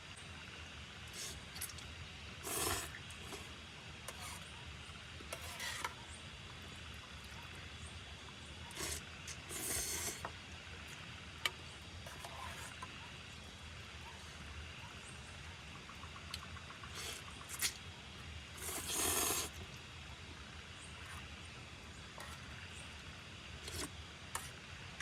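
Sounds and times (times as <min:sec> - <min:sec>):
short scraping strokes: 0:05.3 - 0:05.9, 0:08.7 - 0:10.3.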